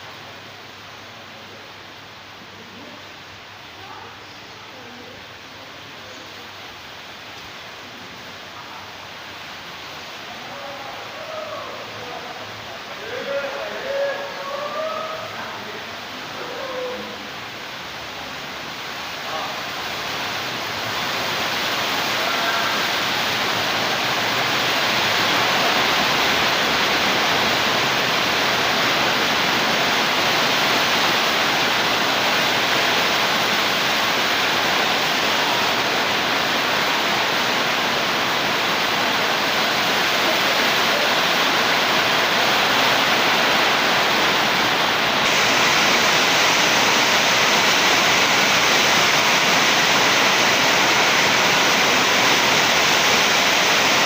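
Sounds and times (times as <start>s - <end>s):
loud rushing noise: 17.2s - 54.0s.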